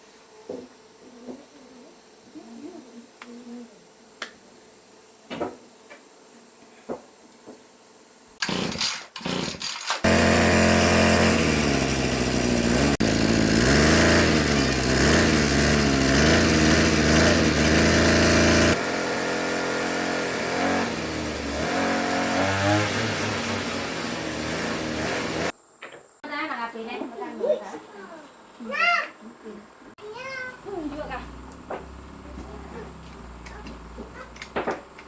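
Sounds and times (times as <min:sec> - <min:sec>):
small petrol engine revving: 0:08.4 - 0:25.6, 0:30.6 - 0:34.6.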